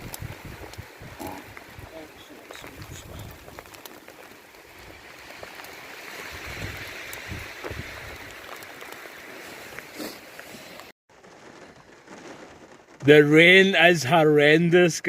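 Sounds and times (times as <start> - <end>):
wind rumbling on microphone: 0.0 - 10.0
heavy rain: 0.0 - 15.0.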